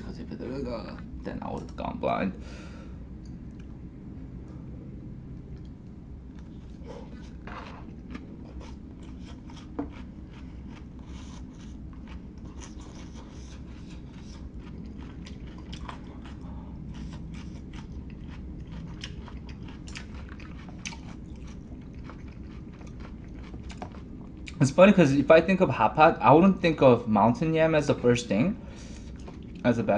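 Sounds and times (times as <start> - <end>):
steady low hum: 0.0 - 29.9
chewing and biting food: 5.5 - 24.6, 29.0 - 29.7
mouth clicks and crunches: 5.6 - 24.6.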